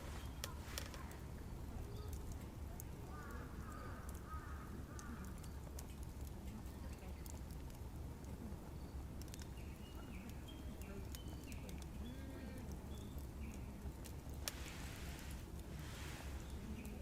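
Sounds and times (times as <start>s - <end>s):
small bird chirping: 0.0s - 2.4s.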